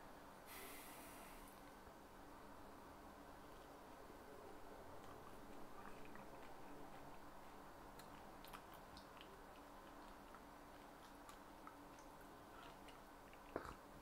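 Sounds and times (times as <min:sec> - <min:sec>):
faint chewing mouth clicks: 0:03.5 - 0:14.0.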